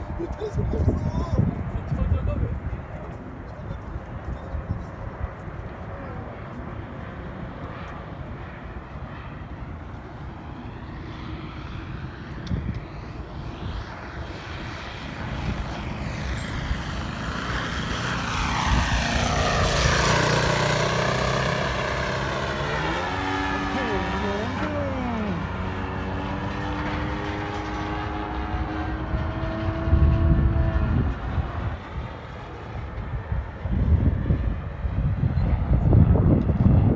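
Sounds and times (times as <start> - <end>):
model airplane engine: 0.0 - 36.9.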